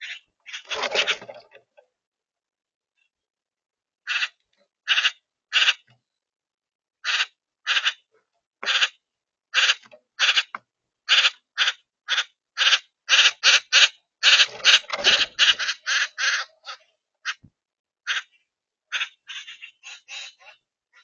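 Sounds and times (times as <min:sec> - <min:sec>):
bird giving harsh calls: 0:04.1 - 0:05.9, 0:07.0 - 0:08.0, 0:08.6 - 0:17.4, 0:18.1 - 0:21.0.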